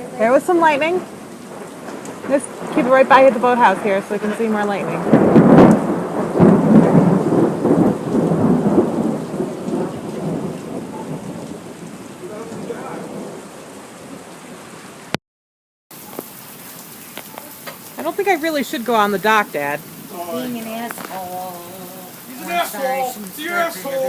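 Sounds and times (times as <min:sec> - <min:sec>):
heavy rain: 0:00.0 - 0:15.2, 0:15.9 - 0:24.0
thunder cracking and rolling: 0:00.2 - 0:13.6.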